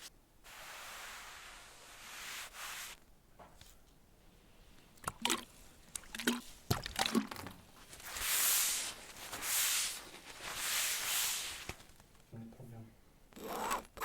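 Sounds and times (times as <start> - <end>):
scraping across fabric wall: 7.8 - 12.1.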